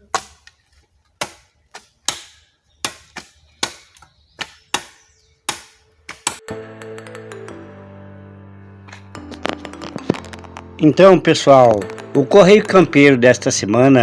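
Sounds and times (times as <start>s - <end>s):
hand tool chopping ground: 0.0s - 6.4s
background music: 5.5s - 14.0s.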